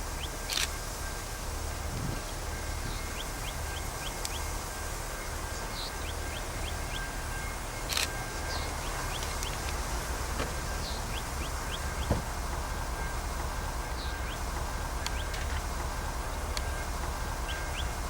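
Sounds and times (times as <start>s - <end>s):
steady low rumble: 0.0s - 18.0s
small birds chirping: 8.4s - 13.1s, 13.8s - 18.0s.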